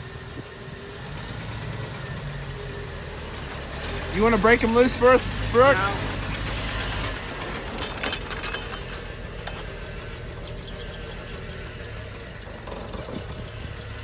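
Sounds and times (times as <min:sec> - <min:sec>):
pickup truck engine idling: 0:00.0 - 0:07.8.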